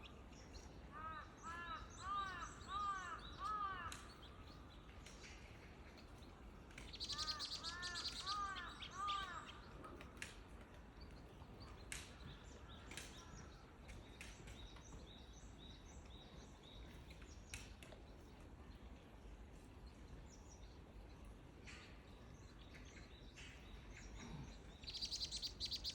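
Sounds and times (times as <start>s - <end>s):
faint bird chirps and clicks: 3.2s - 25.9s
short arched bird calls: 7.0s - 9.4s, 24.8s - 25.9s.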